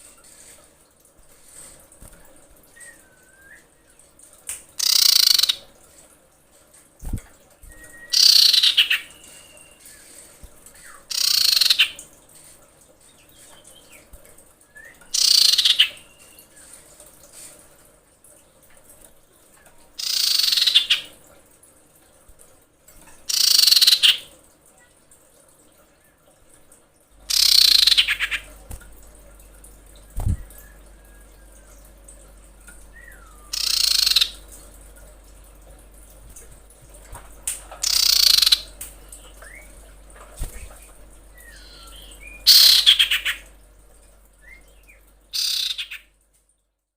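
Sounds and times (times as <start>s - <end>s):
faint short whistles: 2.7s - 3.8s
raspy bird calls: 4.8s - 5.6s, 8.1s - 10.1s, 10.8s - 12.0s, 15.1s - 16.4s, 20.0s - 21.1s, 23.3s - 24.3s, 27.3s - 28.5s, 33.0s - 34.5s, 37.8s - 38.8s, 41.4s - 43.5s, 44.6s - 46.1s.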